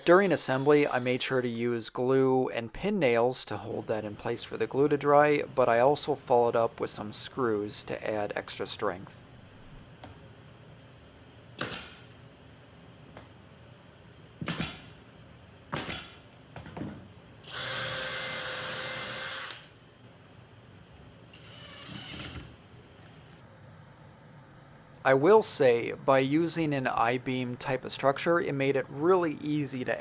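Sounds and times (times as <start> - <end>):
drill driving screws into plywood: 17.4 - 19.7, 21.4 - 22.5.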